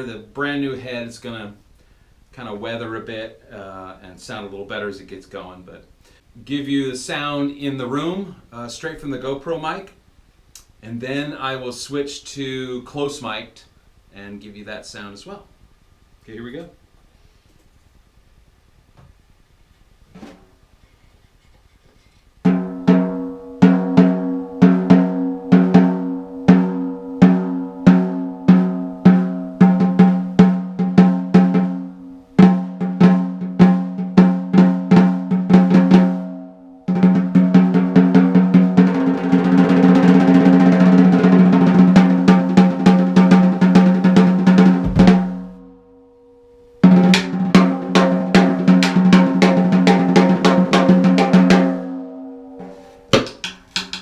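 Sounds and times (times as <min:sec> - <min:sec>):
snare drum strokes and roll: 0:36.9 - 0:45.6, 0:46.8 - 0:51.8.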